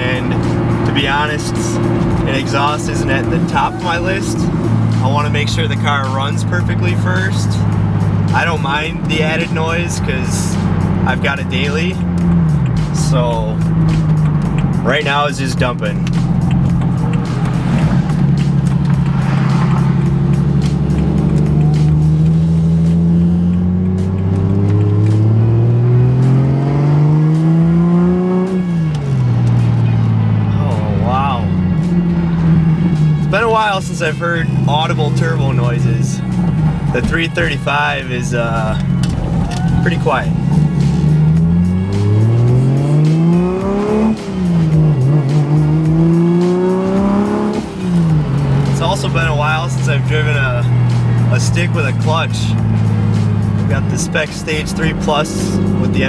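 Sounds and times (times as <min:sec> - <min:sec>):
car engine revving under load: 0:00.0 - 0:56.0.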